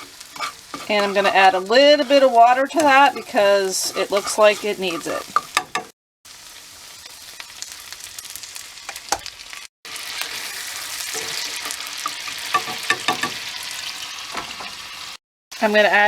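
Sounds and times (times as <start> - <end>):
utensil stirring and scraping: 0.0 - 5.9, 10.3 - 13.3
sauce sizzling in a pan: 0.0 - 15.8.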